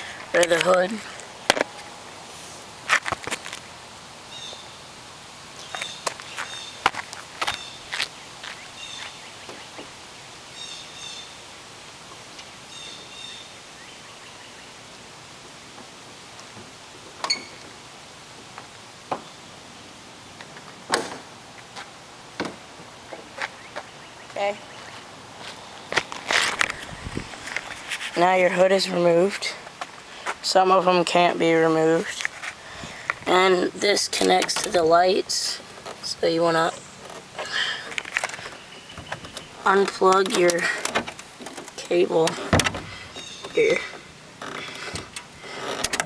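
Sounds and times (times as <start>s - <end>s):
knocks and clunks of tractor hood: 39.0s - 43.0s.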